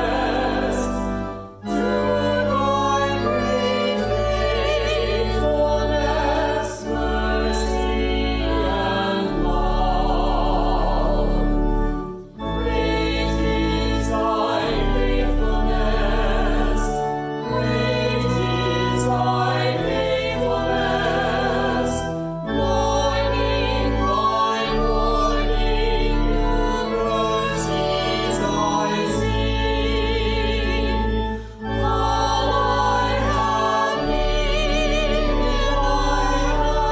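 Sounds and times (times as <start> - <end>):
people singing a hymn: 0.0 - 36.9.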